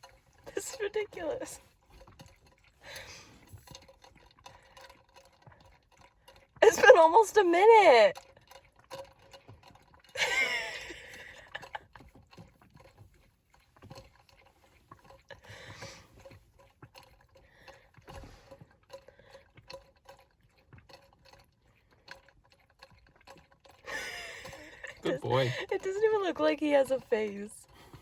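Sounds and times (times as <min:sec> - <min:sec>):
dog lapping water: 0:00.0 - 0:28.0
person's voice: 0:06.6 - 0:08.1, 0:25.0 - 0:27.6.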